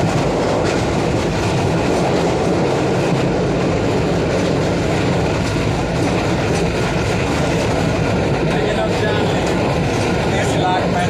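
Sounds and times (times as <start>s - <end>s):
train rumble with wheel noise: 0.0s - 11.0s.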